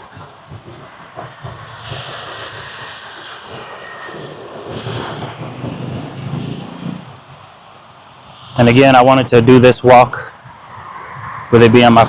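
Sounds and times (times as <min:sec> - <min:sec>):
street traffic passing: 0:00.0 - 0:12.0.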